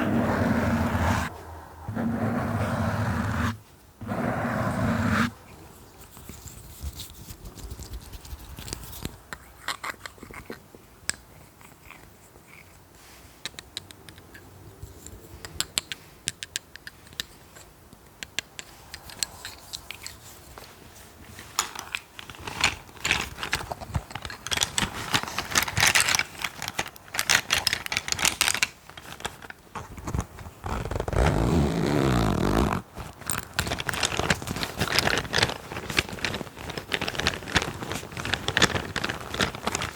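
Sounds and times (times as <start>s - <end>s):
tapping and scratching on objects: 21.4s - 31.1s, 33.0s - 39.9s.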